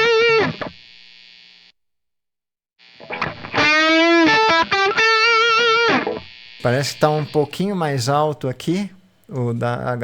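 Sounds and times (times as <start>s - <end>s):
distorted electric guitar: 0.0s - 1.4s, 2.8s - 8.0s.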